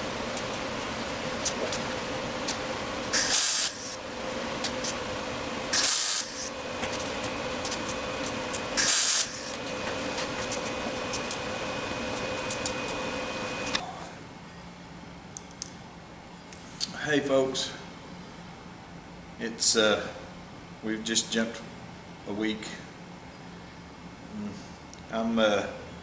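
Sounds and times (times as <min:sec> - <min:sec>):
crackling tack welds: 0:00.0 - 0:13.8.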